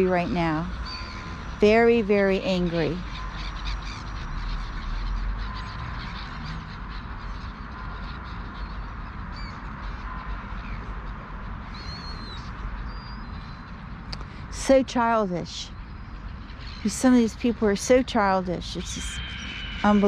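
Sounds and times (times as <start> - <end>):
low outdoor rumble: 0.0 - 20.0
faint high bird chirps: 11.7 - 13.7, 18.2 - 20.0.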